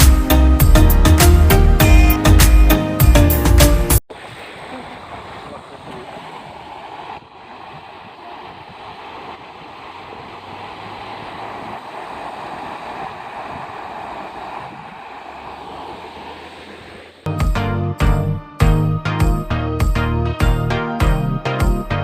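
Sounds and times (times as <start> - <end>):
falling water rushing: 4.0 - 17.3.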